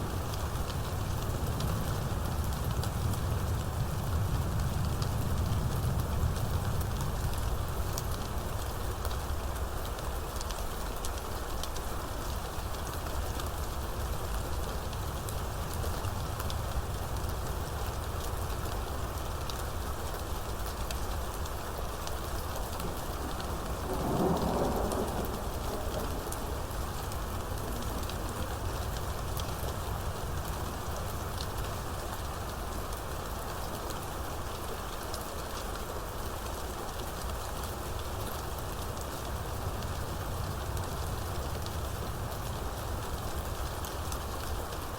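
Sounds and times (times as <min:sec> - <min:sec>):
rain falling: 0:00.0 - 0:44.9
thunder: 0:21.8 - 0:30.6.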